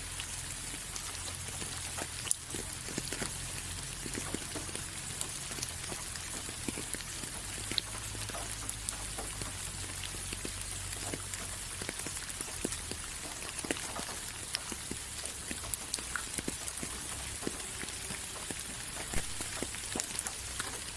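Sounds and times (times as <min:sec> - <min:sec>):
raindrops tapping: 0:00.0 - 0:20.9
steady rain hiss: 0:00.0 - 0:20.9.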